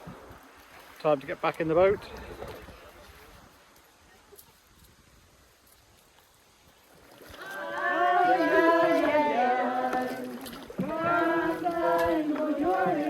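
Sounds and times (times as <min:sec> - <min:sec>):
group of voices singing: 0:07.4 - 0:13.0.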